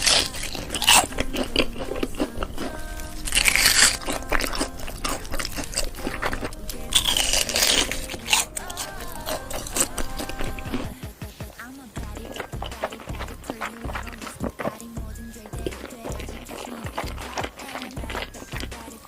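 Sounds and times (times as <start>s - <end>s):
chewing crunchy food: 0.0s - 11.0s, 12.0s - 19.0s
crunching bites: 0.0s - 11.0s, 12.0s - 19.0s.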